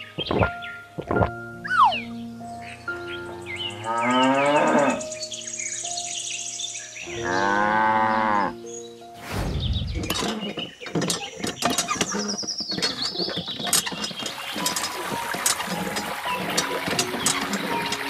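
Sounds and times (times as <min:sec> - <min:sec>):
cow mooing: 0:03.3 - 0:05.0, 0:07.1 - 0:08.6
whoosh: 0:09.2 - 0:10.2.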